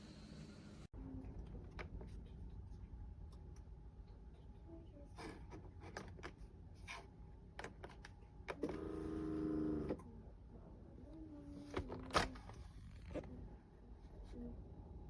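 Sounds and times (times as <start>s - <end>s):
coffee maker low noise: 8.5s - 10.1s.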